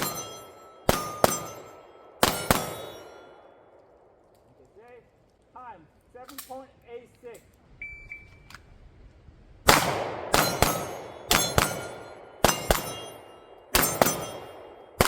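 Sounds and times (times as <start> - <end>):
steel plates ringing: 0.0 - 3.4, 10.3 - 15.0
pistol shots: 0.0 - 4.2, 9.7 - 15.0.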